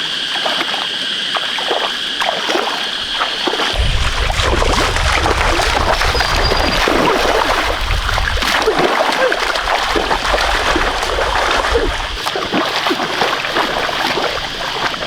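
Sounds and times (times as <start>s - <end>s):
water splashing in shallow mud: 0.0s - 15.0s
deep rumble: 3.8s - 12.3s.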